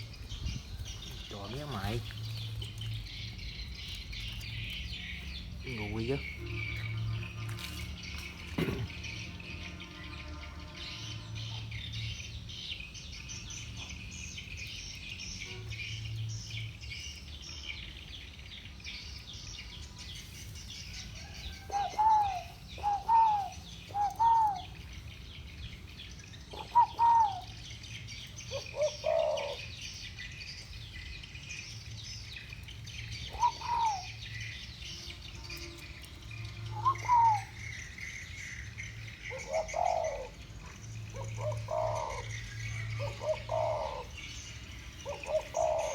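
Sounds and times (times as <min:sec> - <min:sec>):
doves cooing: 0:20.9 - 0:25.0, 0:26.5 - 0:29.9, 0:33.0 - 0:34.5, 0:36.4 - 0:45.9.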